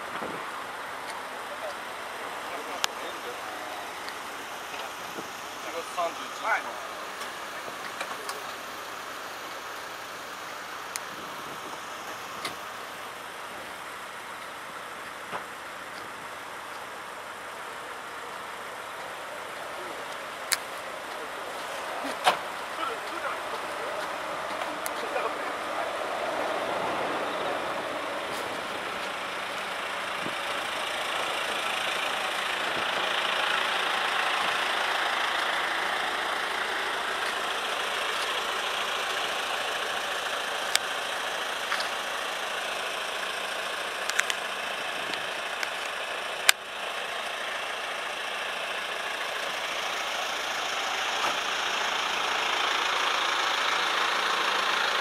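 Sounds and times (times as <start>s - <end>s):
rain and wet road rushing: 21.1s - 55.0s.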